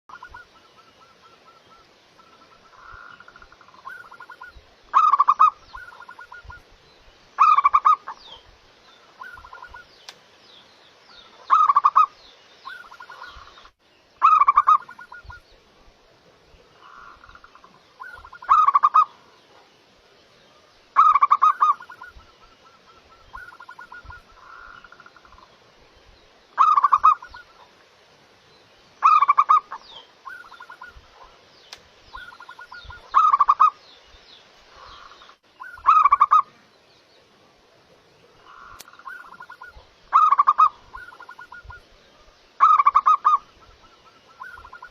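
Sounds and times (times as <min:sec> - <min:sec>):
dove cooing: 0:21.0 - 0:25.4, 0:26.6 - 0:27.6, 0:38.4 - 0:41.8.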